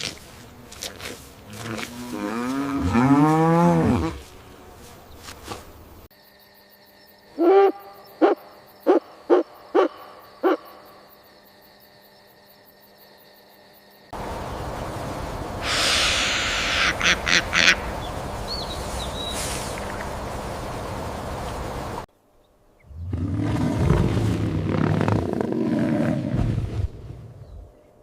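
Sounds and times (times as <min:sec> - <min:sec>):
owl hooting: 0:07.4 - 0:10.7, 0:15.6 - 0:18.0
loud hissing burst: 0:14.2 - 0:22.1.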